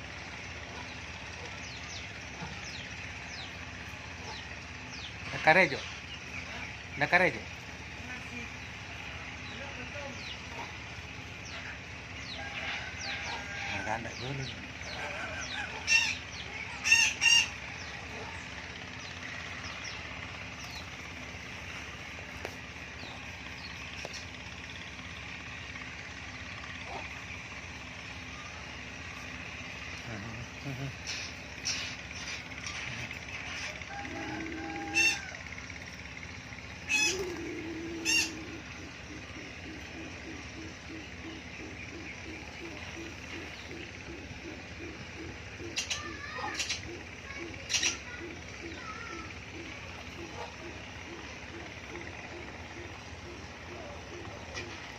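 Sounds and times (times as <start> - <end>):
steady background noise: 0.0 - 54.9
dove cooing: 9.0 - 24.3, 26.4 - 54.9
loud bird squawks: 10.2 - 22.2, 25.7 - 35.5, 36.7 - 54.9.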